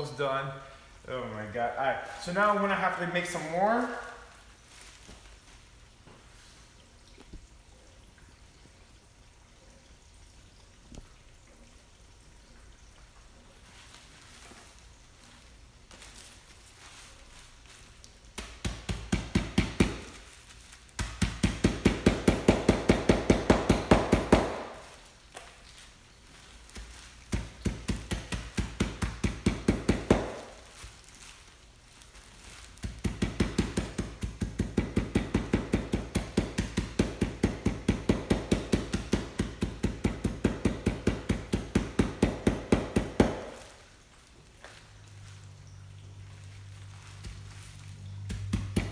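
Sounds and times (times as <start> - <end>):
pretzels pounded in a bag: 18.3 - 25.7, 26.6 - 31.4, 32.3 - 43.9, 47.1 - 48.9.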